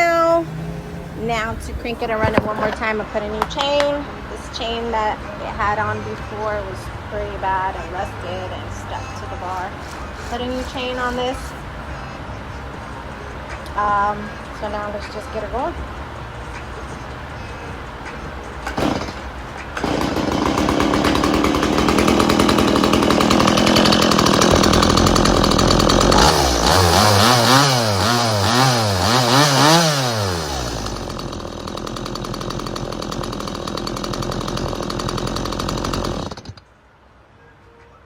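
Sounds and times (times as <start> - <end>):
chainsaw engine revving and idling: 0.0 - 3.0, 5.6 - 11.6, 18.7 - 36.6.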